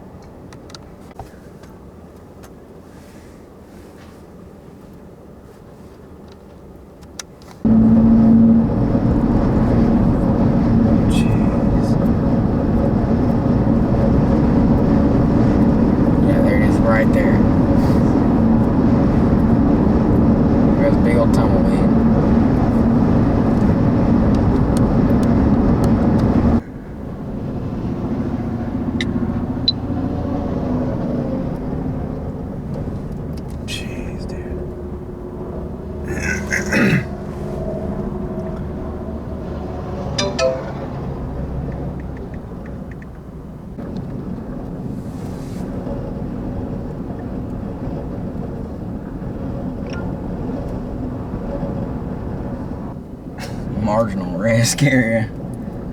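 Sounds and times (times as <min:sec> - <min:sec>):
vehicle running hum: 0:04.0 - 0:55.9
rushing wind: 0:07.7 - 0:33.7.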